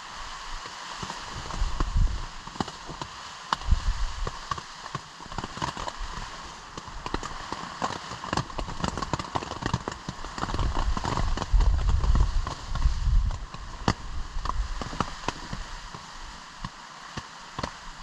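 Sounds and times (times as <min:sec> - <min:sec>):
wind on microphone: 0:00.0 - 0:04.6, 0:10.1 - 0:16.7
rain drops ticking: 0:00.2 - 0:18.0.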